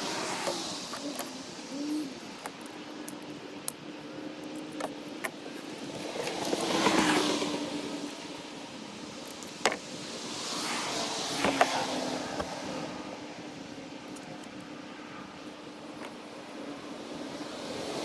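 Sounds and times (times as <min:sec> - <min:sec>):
vehicles passing by: 0:04.8 - 0:17.0.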